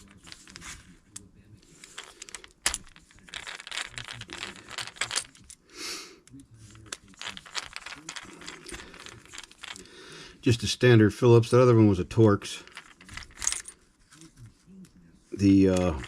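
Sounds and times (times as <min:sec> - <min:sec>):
small metal tools rattling: 0:01.7 - 0:05.6, 0:06.7 - 0:10.6, 0:12.1 - 0:13.9, 0:15.4 - 0:16.0.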